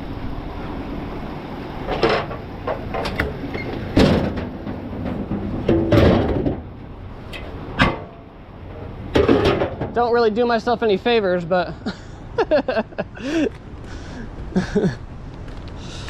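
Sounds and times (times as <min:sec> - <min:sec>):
low background rumble: 0:00.0 - 0:16.0
sharp clunks and knocks: 0:01.9 - 0:10.0.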